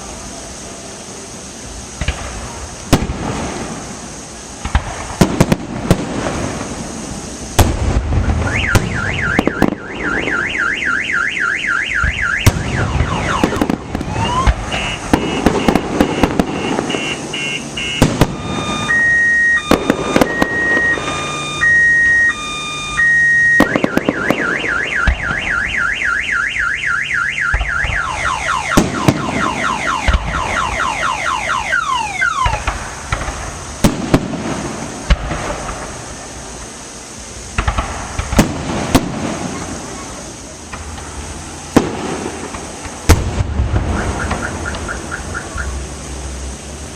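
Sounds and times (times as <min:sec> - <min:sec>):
fireworks banging: 0:01.0 - 0:46.6
car alarm warbling and beeping: 0:08.4 - 0:32.6.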